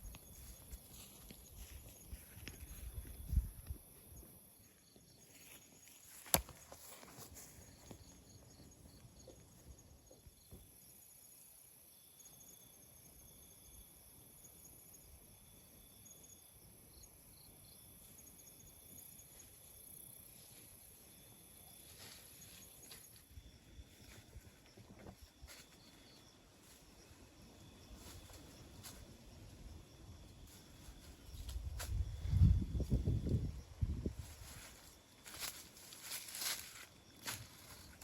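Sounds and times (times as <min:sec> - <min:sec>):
cricket chirping: 0:00.0 - 0:38.0
insects trilling: 0:00.0 - 0:38.0.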